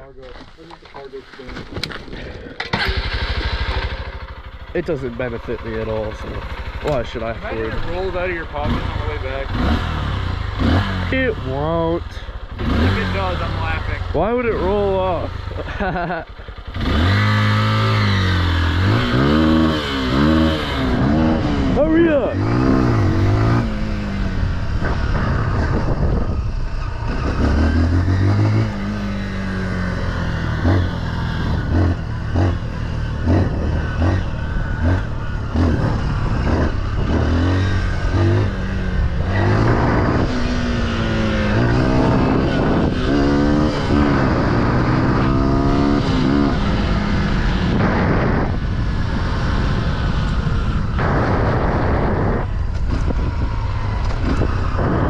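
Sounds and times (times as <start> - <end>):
small off-road engine revving: 1.5 - 55.0
rough rushing noise: 16.3 - 55.0.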